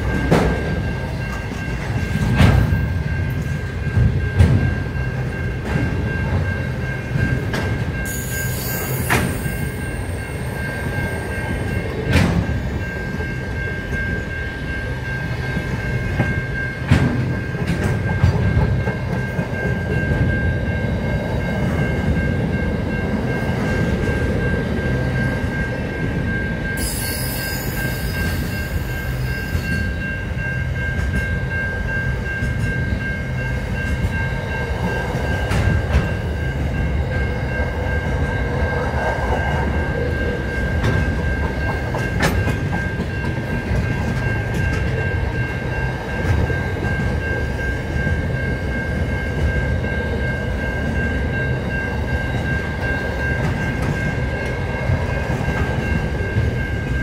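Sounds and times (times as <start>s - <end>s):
steady high tone: 0.0s - 57.0s
train wagons and wheels rumbling: 0.0s - 57.0s
wheels clicking over rail joints: 39.0s - 47.6s.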